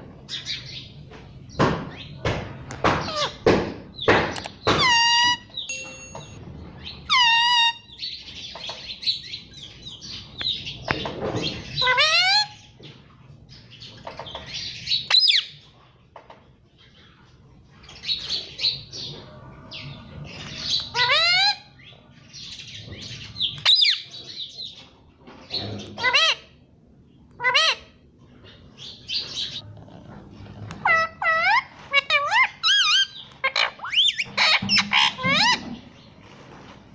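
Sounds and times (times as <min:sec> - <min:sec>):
parrot squawky chatter: 0:30.7 - 0:35.8.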